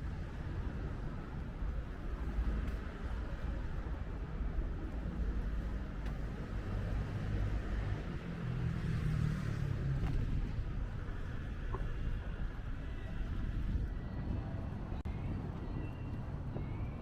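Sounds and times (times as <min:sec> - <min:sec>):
wind and road noise rumble: 0:00.0 - 0:17.0
vehicle engine hum passing: 0:05.4 - 0:17.0.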